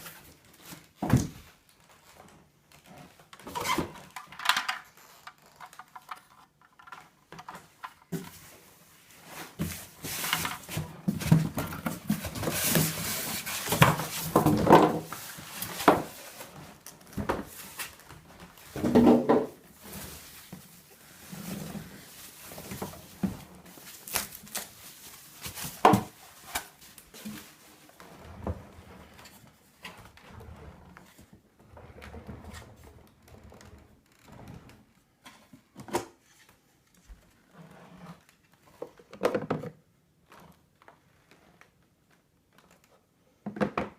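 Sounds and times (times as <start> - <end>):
plastic parts clicking and knocking: 3.4 - 8.3.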